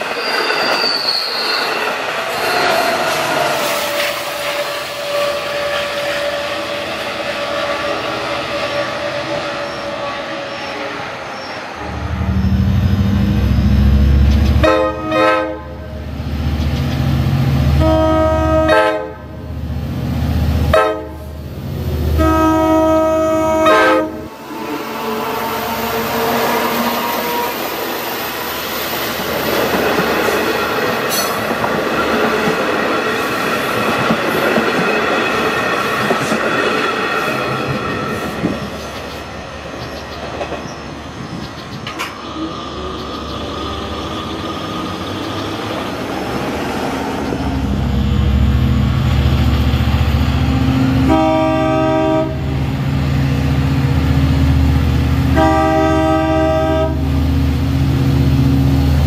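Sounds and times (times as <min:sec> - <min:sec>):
train wheels rolling on rails: 0:00.0 - 0:15.2, 0:15.8 - 0:17.9, 0:23.4 - 0:59.0
diesel locomotive engine: 0:00.0 - 0:59.0
train horn: 0:02.4 - 0:16.0, 0:17.7 - 0:19.4, 0:20.7 - 0:21.4, 0:22.1 - 0:28.2, 0:50.6 - 0:52.6, 0:55.3 - 0:57.2.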